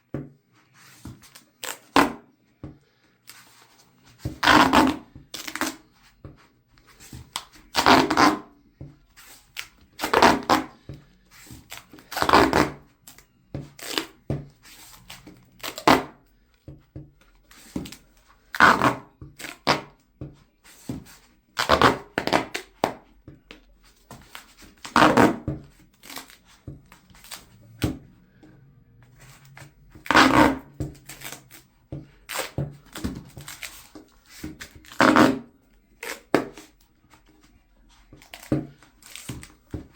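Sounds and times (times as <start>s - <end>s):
duct tape ripping: 4.4s - 5.8s, 7.4s - 8.5s, 14.8s - 16.2s, 24.3s - 27.6s, 29.2s - 31.7s, 34.8s - 36.7s, 38.2s - 39.6s.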